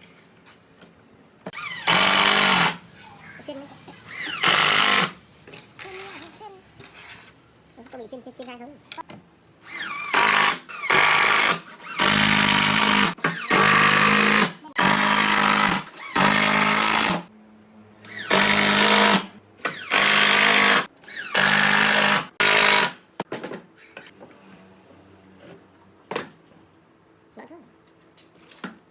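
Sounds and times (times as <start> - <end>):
power drill driving into wood: 1.5 - 2.8, 4.1 - 5.2, 9.6 - 17.3, 18.0 - 23.0.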